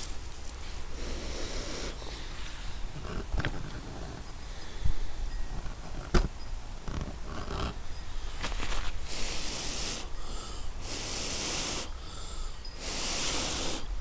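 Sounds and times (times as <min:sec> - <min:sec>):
person blowing long breath: 0:00.9 - 0:02.4, 0:09.0 - 0:14.0
knocks and rustles of tinder: 0:05.6 - 0:09.0.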